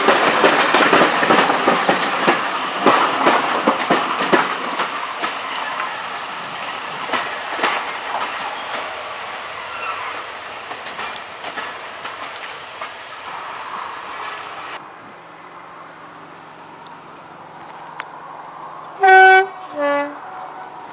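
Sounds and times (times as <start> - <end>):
wheels clicking over rail joints: 0.0 - 15.2, 15.8 - 20.9
train rolling past: 0.0 - 20.9.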